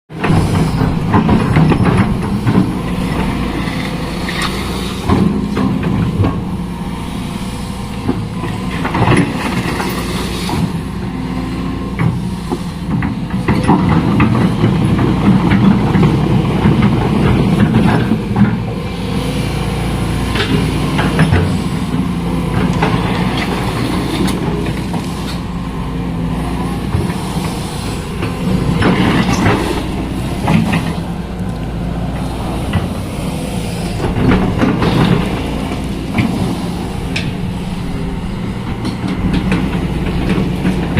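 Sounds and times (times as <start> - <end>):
excavator diesel engine running: 0.1 - 40.9
knocks and clanks: 0.2 - 6.6, 11.9 - 18.7, 26.9 - 37.6, 38.2 - 40.9.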